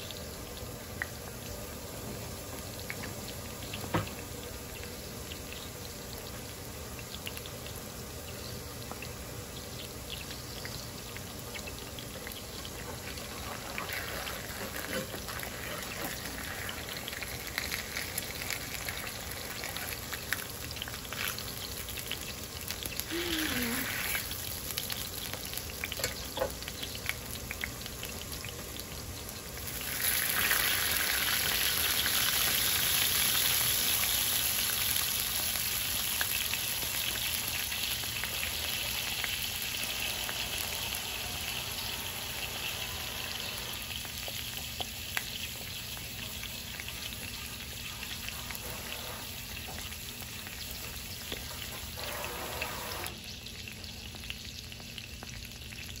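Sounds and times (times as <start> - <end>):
food sizzling in hot oil: 0.0 - 56.0.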